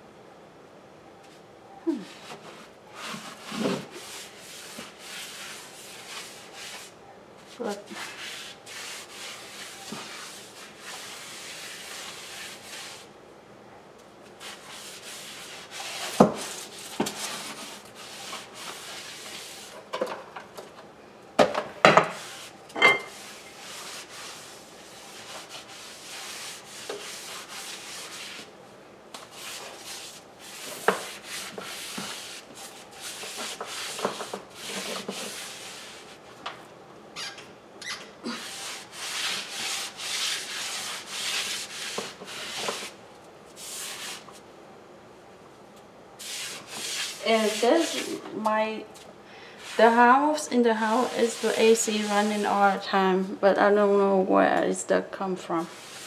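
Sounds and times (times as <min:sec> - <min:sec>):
brush sweeping hard floor: 0:02.1 - 0:13.1, 0:14.2 - 0:20.0, 0:22.0 - 0:28.5, 0:29.2 - 0:36.4, 0:38.3 - 0:44.4, 0:46.2 - 0:52.8, 0:55.6 - 0:56.0.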